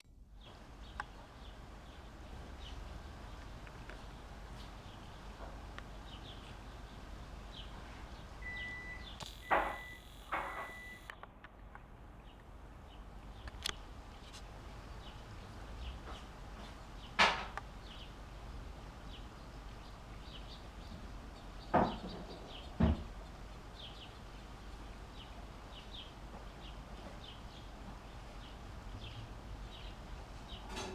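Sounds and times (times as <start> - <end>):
small birds chirping: 0.4 - 30.8
loud knocks: 21.7 - 23.2.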